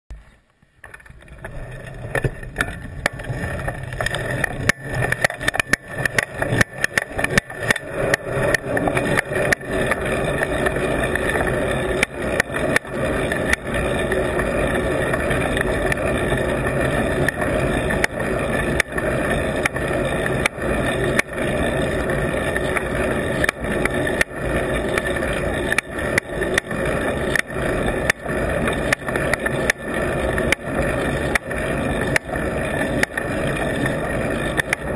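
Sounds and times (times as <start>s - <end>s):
rumble of tyres and wind: 0.1s - 34.9s.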